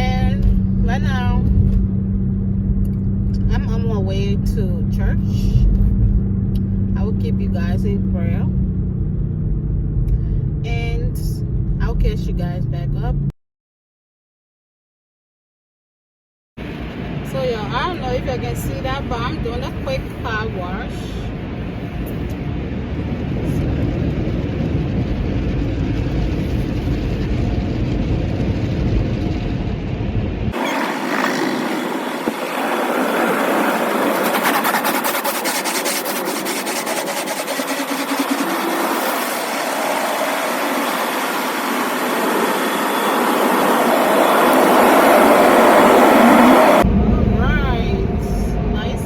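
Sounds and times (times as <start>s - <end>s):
car engine rumbling: 0.0s - 13.3s, 16.6s - 49.0s
car wash water spraying: 30.6s - 46.8s.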